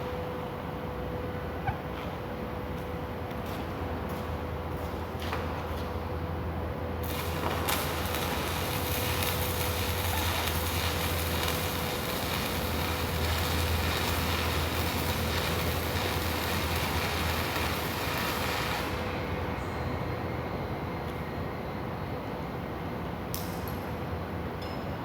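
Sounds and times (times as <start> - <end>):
constant low hum: 0.0 - 25.0
arc welding crackling hiss: 7.0 - 19.4.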